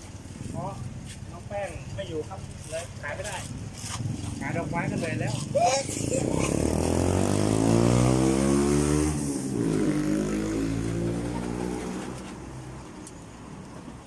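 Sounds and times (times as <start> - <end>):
vehicle engine passing by: 3.5 - 12.9.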